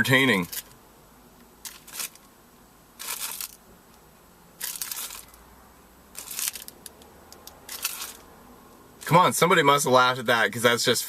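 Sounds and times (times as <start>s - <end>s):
faint low hum: 0.0s - 11.0s
rustling crunching noises: 1.6s - 2.3s, 3.0s - 4.0s, 4.6s - 5.4s, 6.1s - 8.3s.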